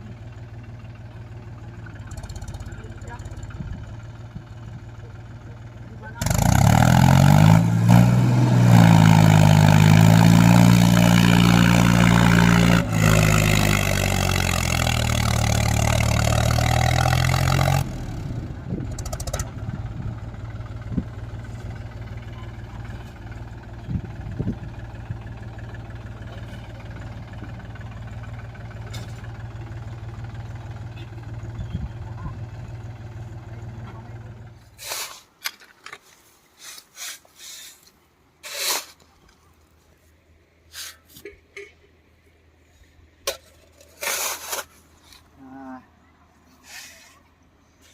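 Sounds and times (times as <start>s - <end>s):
tractor diesel engine: 0.0s - 41.3s.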